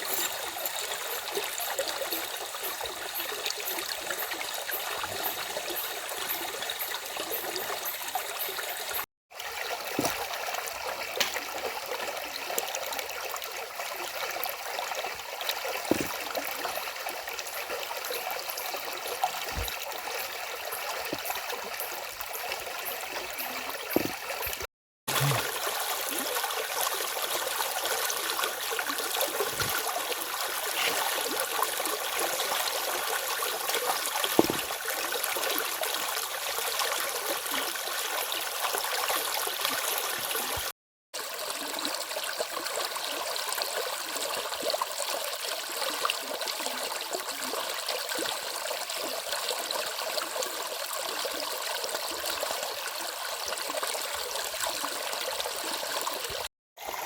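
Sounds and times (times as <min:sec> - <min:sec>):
stream water rushing over cascade: 0:15.4 - 0:16.6, 0:22.8 - 0:40.7
knock: 0:34.4 - 0:34.6.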